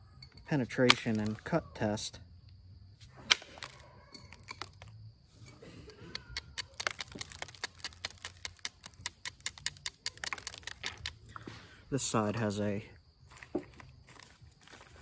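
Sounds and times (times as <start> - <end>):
stone snapping: 3.2 - 5.0, 6.2 - 11.2
small dry clicks of stone knapping: 3.3 - 11.5.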